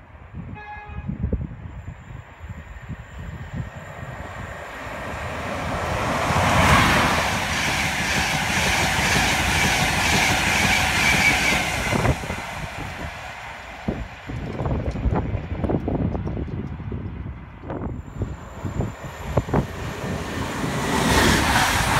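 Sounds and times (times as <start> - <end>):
locomotive passing: 3.1 - 21.9
train wheels clattering over rails: 5.7 - 12.5.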